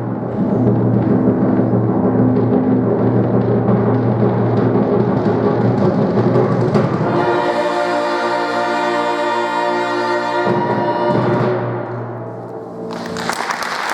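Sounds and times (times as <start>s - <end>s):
heavy drumming: 0.0s - 11.8s
live band music: 0.0s - 13.9s
long held chord: 7.0s - 13.8s.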